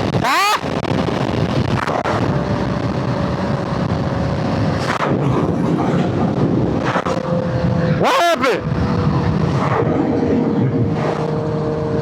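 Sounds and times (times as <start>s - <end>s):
motorcycle engine tone: 0.0s - 0.8s
wind buffeting microphone: 0.0s - 12.0s.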